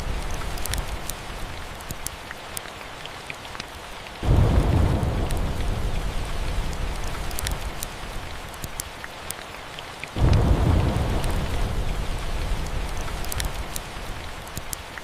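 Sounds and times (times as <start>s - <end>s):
fireplace crackles: 0.0s - 2.6s, 4.3s - 9.4s, 10.1s - 15.0s
steady rain: 0.0s - 15.0s
low thunder rumble: 4.2s - 8.4s, 10.2s - 14.4s.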